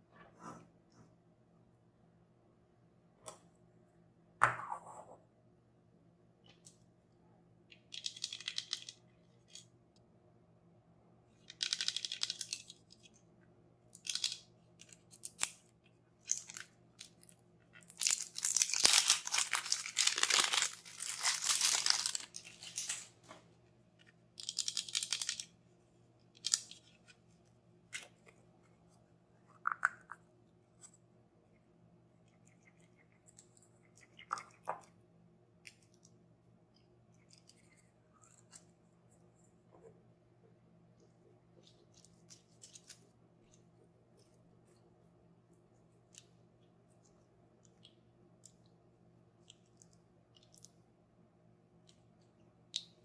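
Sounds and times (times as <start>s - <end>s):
packaging tearing and crinkling: 17.9s - 23.1s.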